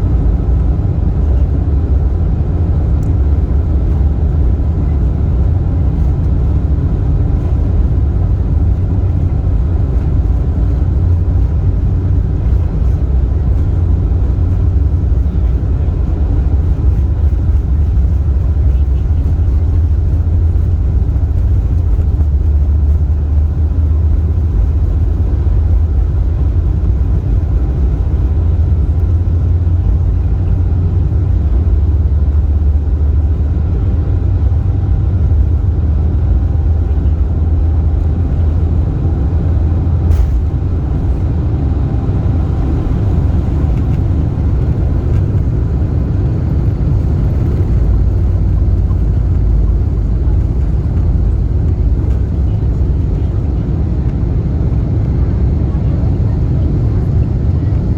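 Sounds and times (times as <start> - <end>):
airliner engines rumbling: 0.0 - 57.9
faint engine whine: 0.0 - 57.9.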